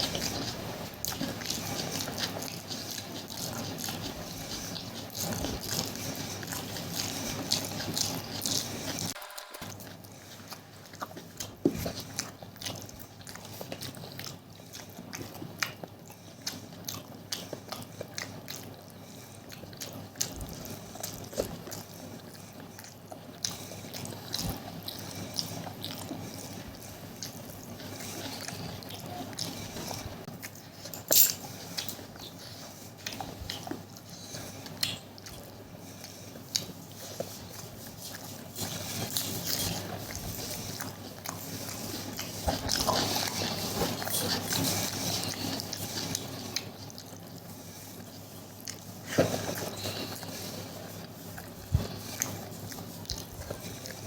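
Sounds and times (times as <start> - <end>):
wet chewing: 0.0 - 54.0
lip smacks: 33.0 - 47.3.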